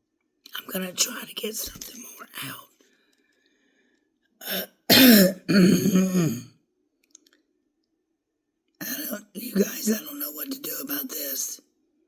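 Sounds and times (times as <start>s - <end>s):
man clearing his throat: 4.4s - 6.5s.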